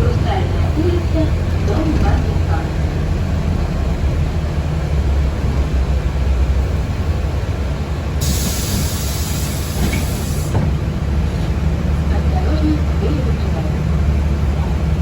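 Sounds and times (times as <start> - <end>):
vehicle interior low rumble: 0.0 - 15.0
compressed air hiss: 8.2 - 10.6.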